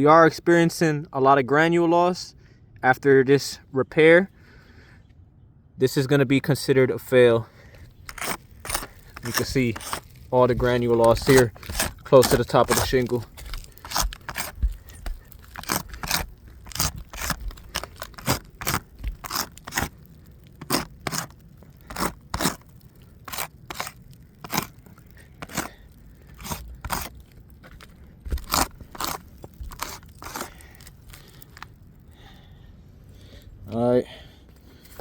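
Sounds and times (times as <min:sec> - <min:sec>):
crunches and scrapes on shingles: 0:07.0 - 0:32.6, 0:34.5 - 0:35.0.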